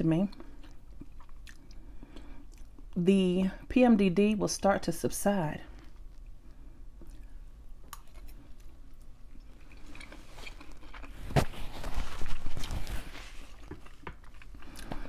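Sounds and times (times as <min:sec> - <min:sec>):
person chewing: 0:00.3 - 0:03.0, 0:05.8 - 0:15.0.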